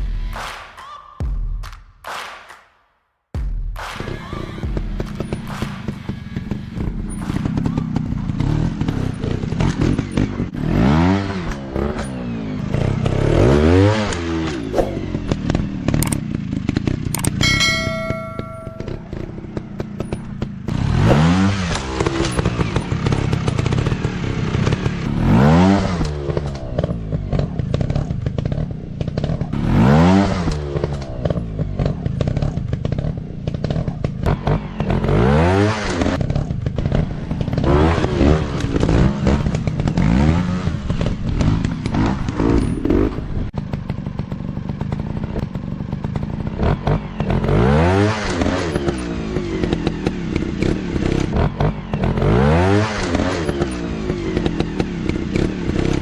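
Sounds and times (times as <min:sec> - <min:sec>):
dirt bike engine revving: 0:04.6 - 0:56.0.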